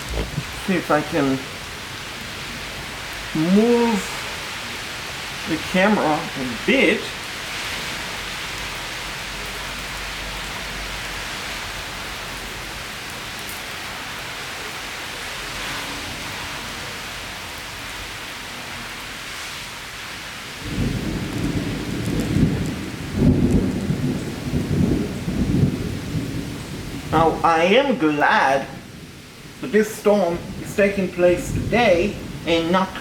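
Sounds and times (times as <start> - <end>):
thunder rumbling: 0.0 - 4.5, 20.6 - 29.2, 30.3 - 33.0
heavy rain falling: 0.0 - 33.0.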